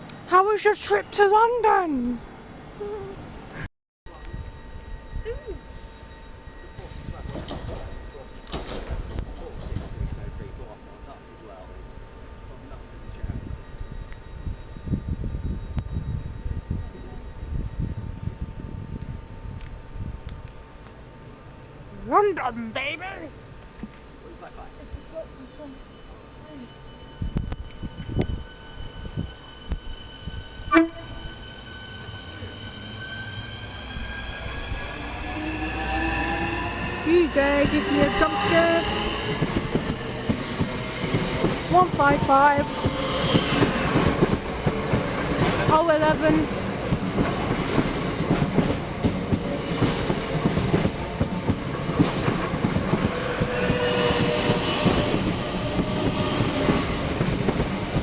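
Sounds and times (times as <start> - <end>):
electric traction whine: 0.1 - 58.0
train wheels clicking over rail joints: 6.7 - 10.4, 31.6 - 58.0
short train horn blip: 30.7 - 31.4.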